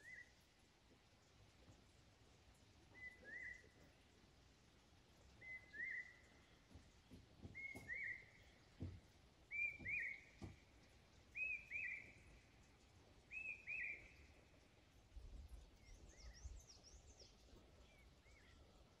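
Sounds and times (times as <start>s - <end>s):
songbird double whistled call: 3.0s - 3.6s, 5.4s - 6.3s, 7.5s - 8.5s, 9.5s - 10.4s, 11.4s - 12.3s, 13.3s - 14.2s.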